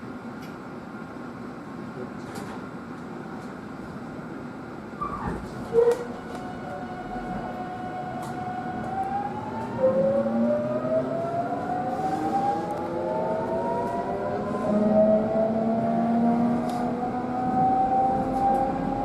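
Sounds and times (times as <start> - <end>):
electric train motors whining: 5.7 - 19.0.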